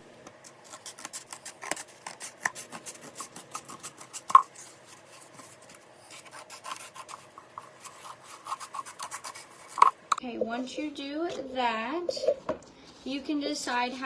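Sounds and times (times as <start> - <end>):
scissors cutting cardboard: 0.3 - 10.0.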